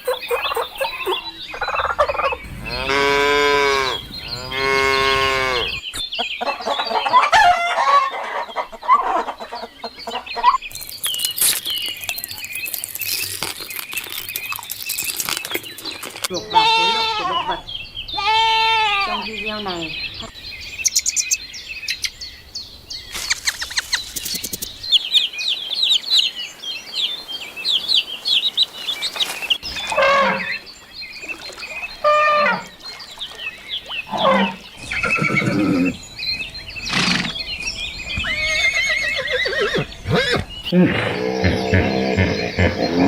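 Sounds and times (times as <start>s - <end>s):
high bird chirps: 0.0s - 6.2s, 10.4s - 16.1s, 18.9s - 26.4s
loud falling animal calls: 1.8s - 5.8s.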